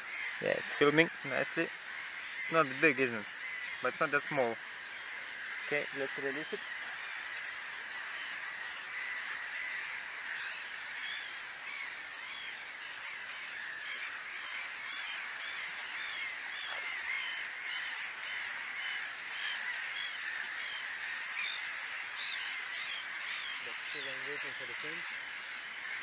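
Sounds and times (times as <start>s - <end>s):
birds singing and chirping: 0.0s - 26.0s.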